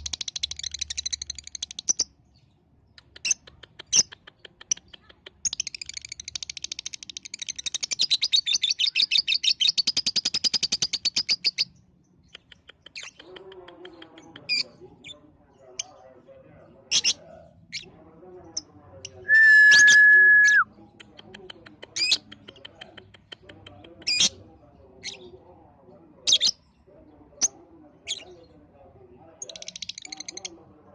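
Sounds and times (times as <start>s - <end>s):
bird chirps: 0.0s - 16.0s
high whistle: 19.3s - 20.6s.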